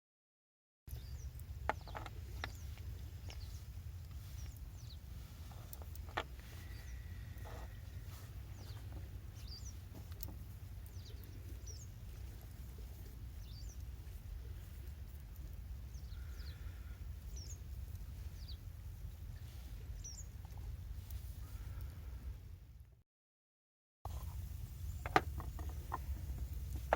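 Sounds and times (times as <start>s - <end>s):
small bird chirping: 0.9s - 21.8s
steady low rumble: 0.9s - 23.0s, 24.1s - 26.9s.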